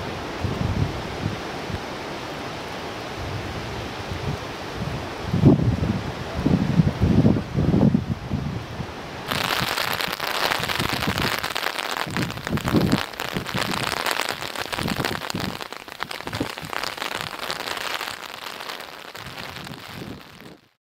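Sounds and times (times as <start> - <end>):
heavy rain falling: 9.0 - 20.8.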